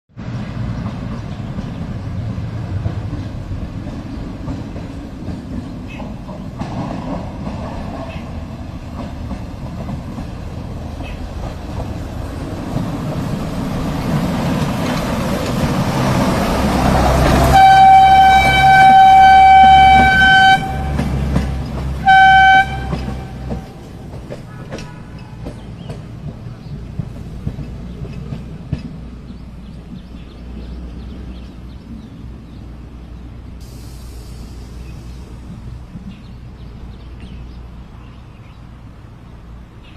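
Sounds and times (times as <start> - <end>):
train running: 0.2 - 39.9
train horn blasts: 17.1 - 23.9.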